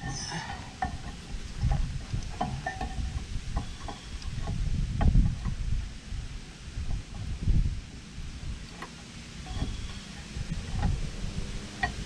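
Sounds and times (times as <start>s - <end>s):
wind rumble on microphone: 0.0s - 12.0s
metal tools clinking and knocking: 0.3s - 4.2s.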